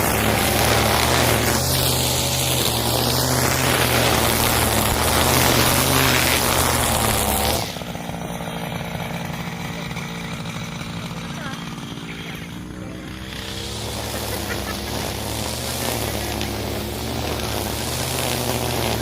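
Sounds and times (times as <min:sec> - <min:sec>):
brushcutter engine running: 0:00.0 - 0:19.0
trimmer line spinning: 0:00.0 - 0:19.0.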